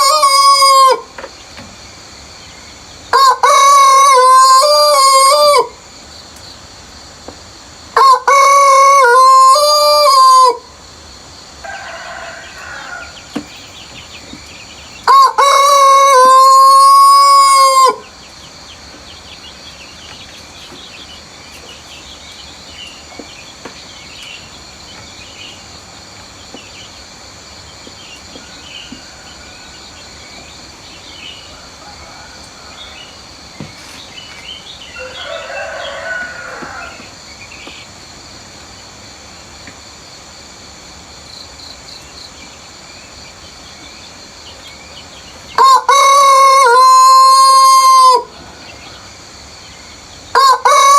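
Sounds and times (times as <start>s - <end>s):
rooster crowing: 0.0s - 1.1s, 3.1s - 5.8s, 8.0s - 10.7s, 11.6s - 14.1s, 14.9s - 18.2s, 28.3s - 30.3s, 31.1s - 33.4s, 34.8s - 37.3s, 45.5s - 49.2s, 50.3s - 50.9s
countryside background: 0.0s - 50.9s.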